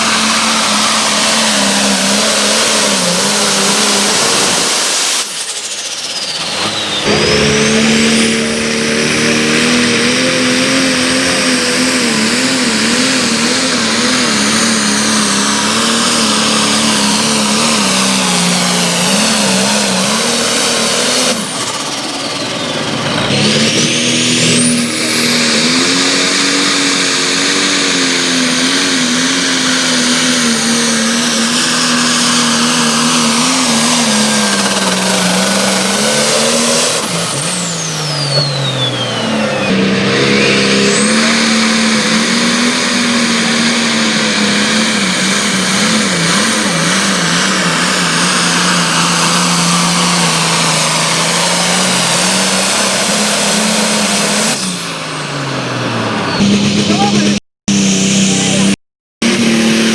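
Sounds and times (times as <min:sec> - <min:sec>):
high sweeping whistle: 0:00.0 - 0:10.2, 0:30.5 - 0:42.4
engine revving under load: 0:00.0 - 0:59.9.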